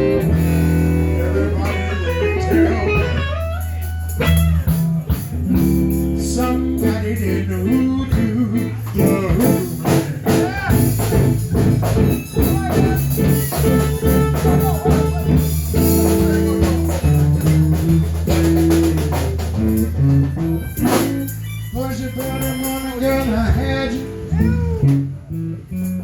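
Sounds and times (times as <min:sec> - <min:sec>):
drum kit beat: 0:00.0 - 0:25.5
bass notes: 0:00.0 - 0:26.0
blues guitar bending notes: 0:00.0 - 0:26.0.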